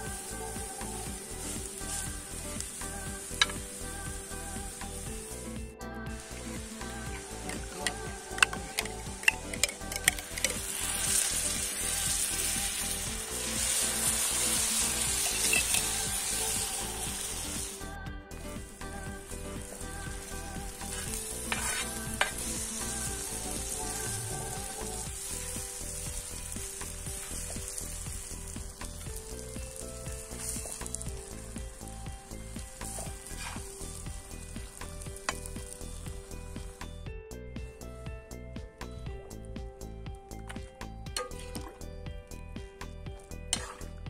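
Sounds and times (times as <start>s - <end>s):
food sizzling in a pan: 0.0s - 37.0s, 43.2s - 44.0s
spoon stirring: 7.4s - 11.3s, 15.0s - 16.1s, 20.8s - 25.0s, 32.8s - 34.0s.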